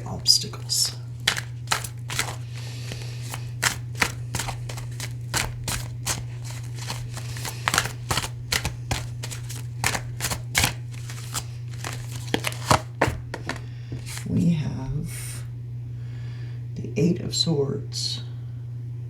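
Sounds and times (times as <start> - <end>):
cards being shuffled: 0.0 - 14.4
steady low hum: 0.0 - 19.0.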